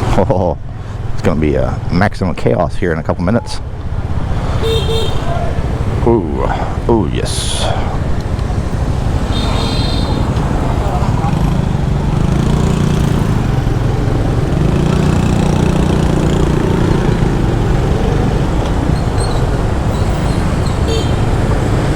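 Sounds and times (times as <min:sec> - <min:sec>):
street traffic: 0:00.0 - 0:21.9
motorbike engine running: 0:07.9 - 0:21.9.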